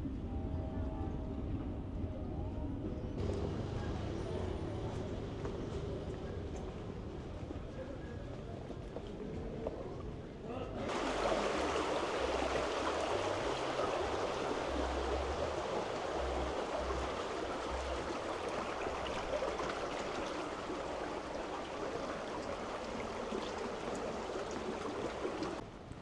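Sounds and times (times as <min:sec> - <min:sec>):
rushing river water: 0:03.2 - 0:08.4, 0:10.8 - 0:25.6.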